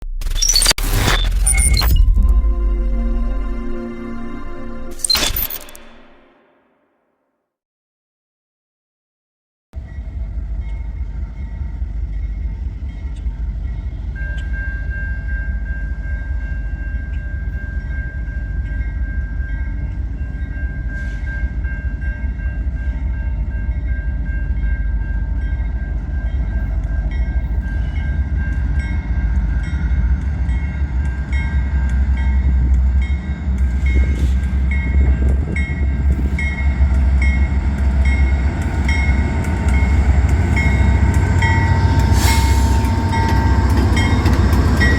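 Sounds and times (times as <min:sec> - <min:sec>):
diesel locomotives rumbling: 0:09.8 - 0:44.9
bell ringing: 0:27.7 - 0:44.9.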